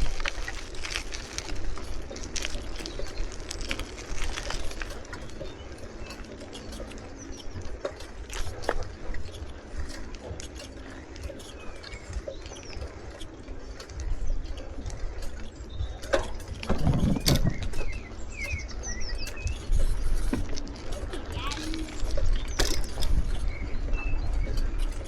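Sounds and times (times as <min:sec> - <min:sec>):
small birds chirping: 0:00.0 - 0:25.0
wind on microphone: 0:11.2 - 0:25.0.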